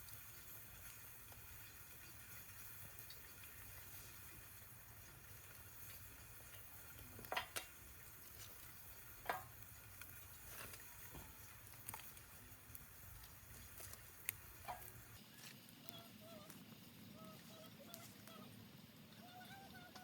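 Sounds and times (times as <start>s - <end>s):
steak sizzling on griddle: 0.0s - 15.2s
sharp crackles: 0.0s - 16.8s.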